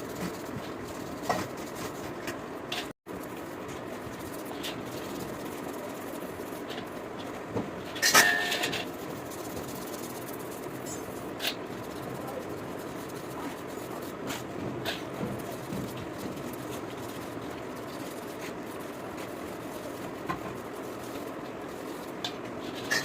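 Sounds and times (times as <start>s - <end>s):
steady background noise: 0.0s - 23.0s
metallic clatter: 7.8s - 11.6s, 21.8s - 23.0s.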